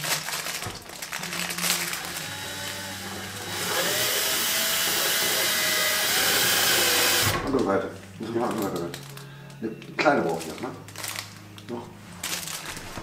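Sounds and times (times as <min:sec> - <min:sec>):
cordless screwdriver running: 0:01.4 - 0:07.4.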